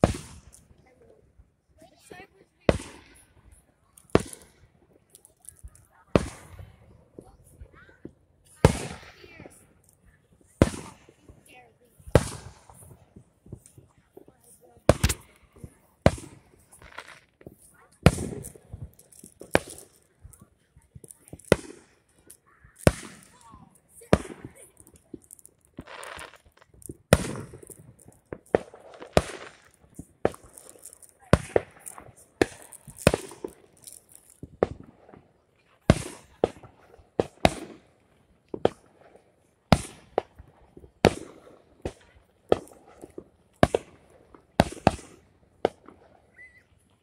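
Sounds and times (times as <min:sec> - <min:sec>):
firework shells bursting: 0:01.8 - 0:46.9.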